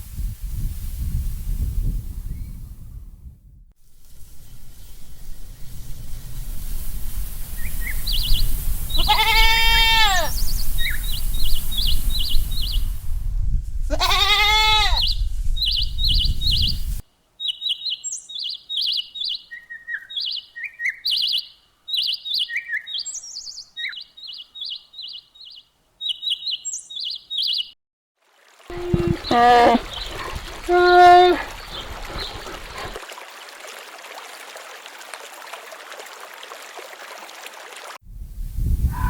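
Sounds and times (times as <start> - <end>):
small birds chirping: 7.6 - 13.0, 14.2 - 27.8, 28.7 - 33.0
sheep bleating: 9.0 - 10.3, 13.9 - 15.0, 28.7 - 29.9, 30.6 - 31.5.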